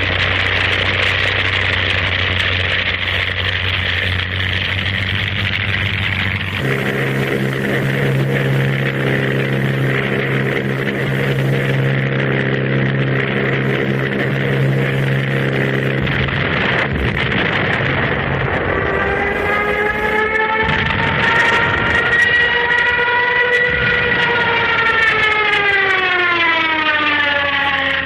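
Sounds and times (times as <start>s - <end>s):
engine running: 0.0s - 28.0s
rising siren-like wail: 3.8s - 28.0s.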